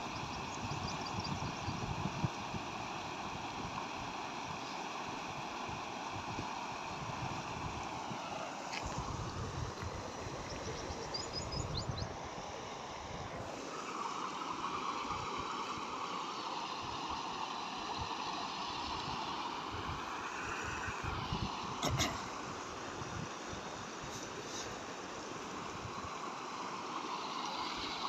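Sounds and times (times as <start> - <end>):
stream rushing over causeway: 0.0 - 28.0.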